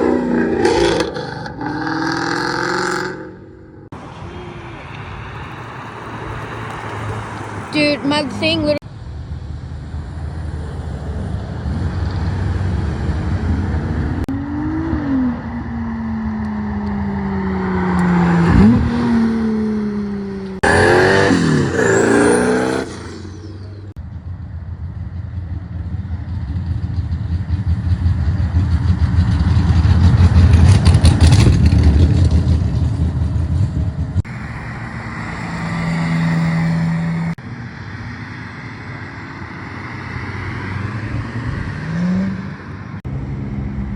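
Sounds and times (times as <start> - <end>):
cars accelerating past: 0.0 - 8.8, 9.8 - 24.0, 25.8 - 43.9.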